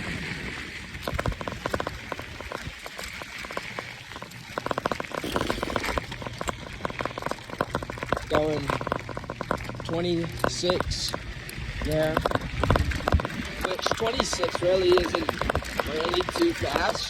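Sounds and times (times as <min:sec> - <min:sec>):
bike tyres rolling over dirt: 0:00.0 - 0:17.0
crackles and snaps: 0:00.9 - 0:17.0.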